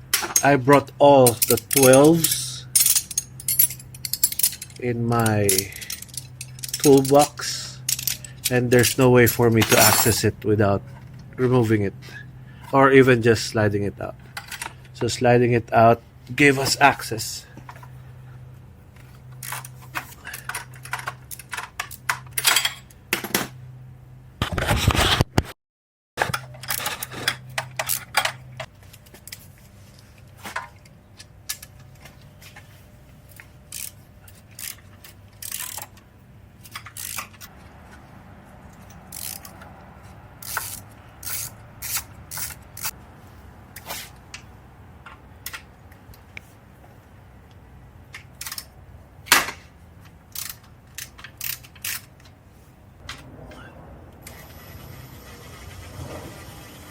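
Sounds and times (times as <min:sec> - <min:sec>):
tools and metal parts clinking: 0:00.1 - 0:11.7, 0:14.2 - 0:15.2, 0:18.9 - 0:23.6, 0:26.2 - 0:29.4, 0:30.0 - 0:32.7, 0:33.3 - 0:37.6, 0:38.6 - 0:39.7, 0:40.4 - 0:43.0, 0:48.1 - 0:48.8, 0:49.4 - 0:52.4.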